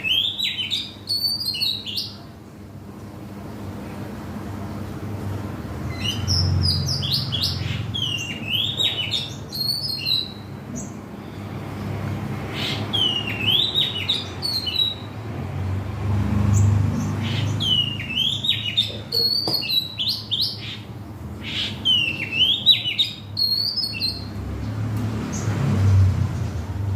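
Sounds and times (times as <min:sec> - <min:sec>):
songbird singing: 0:00.0 - 0:02.4, 0:05.8 - 0:15.4, 0:16.4 - 0:25.6.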